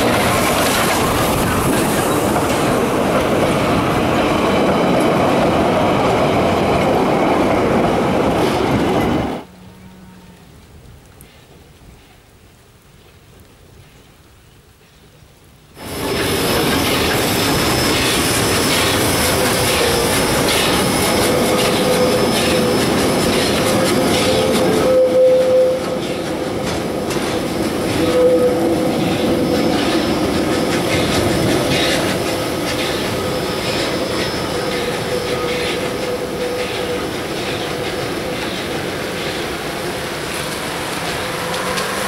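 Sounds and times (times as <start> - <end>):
train wheels clicking over rail joints: 0.0 - 9.1, 15.8 - 42.0
train rolling past: 0.0 - 9.9, 15.8 - 42.0
wheel squeal: 15.8 - 26.3, 27.8 - 39.4, 40.4 - 42.0.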